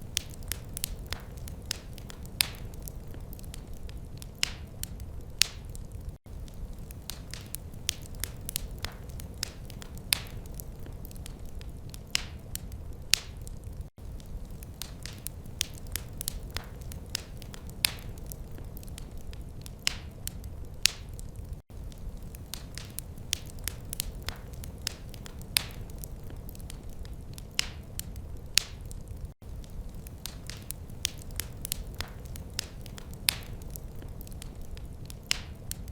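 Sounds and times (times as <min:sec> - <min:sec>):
low rumble of burning: 0:00.0 - 0:35.9
wood fire crackling and popping: 0:00.0 - 0:35.9.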